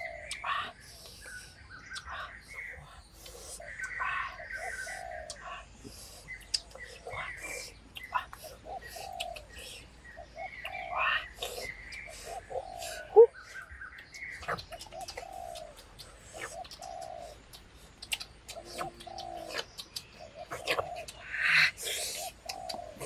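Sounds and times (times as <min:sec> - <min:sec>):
birds calling low notes: 0:00.0 - 0:23.0
birds chirping: 0:00.0 - 0:23.0
scattered clicks: 0:14.0 - 0:21.2.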